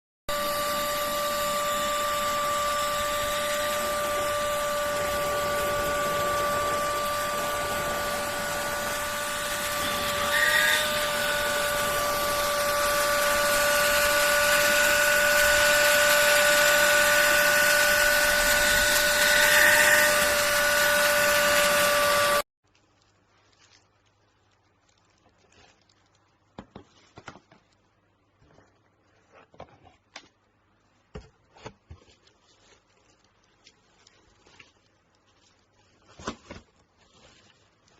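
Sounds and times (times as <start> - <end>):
handheld vacuum cleaner running: 0.3 - 22.5.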